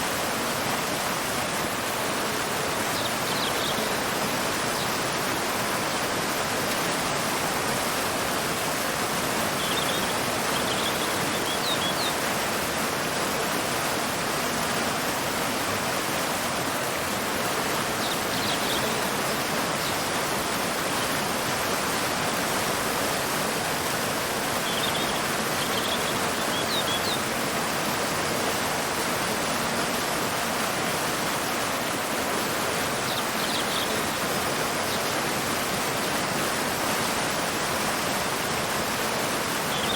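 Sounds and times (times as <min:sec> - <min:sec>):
waterfall rushing: 0:00.0 - 0:39.9
bird chirping faintly: 0:09.6 - 0:12.2.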